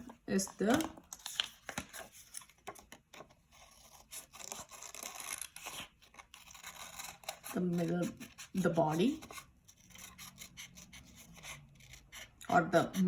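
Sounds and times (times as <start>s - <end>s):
scissors cutting paper: 0.6s - 13.0s
paper rustle: 0.7s - 7.1s.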